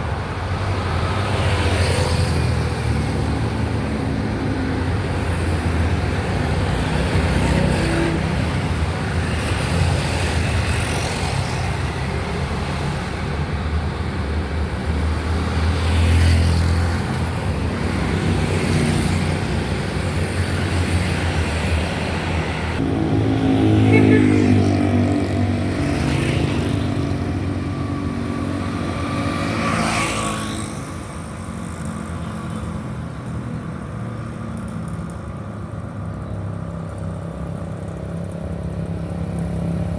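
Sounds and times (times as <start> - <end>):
road traffic rumble: 0.0 - 39.9
vehicles passing close: 0.0 - 39.9
heavy engine deep note: 22.8 - 28.9.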